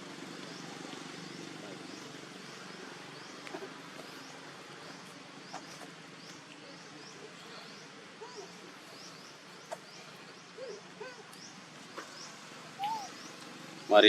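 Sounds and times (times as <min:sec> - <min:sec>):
low arched calls: 0:12.2 - 0:13.9
high rising chirp: 0:12.8 - 0:13.3.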